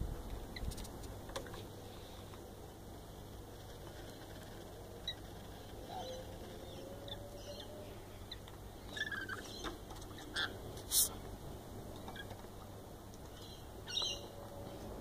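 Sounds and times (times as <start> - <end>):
low steady hum: 0.0 - 15.0
bird chirps: 5.0 - 10.6, 13.3 - 14.3.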